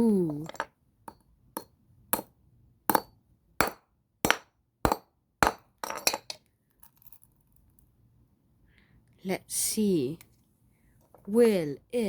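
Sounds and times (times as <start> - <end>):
hammer striking toy car: 0.6 - 2.3, 2.9 - 6.4.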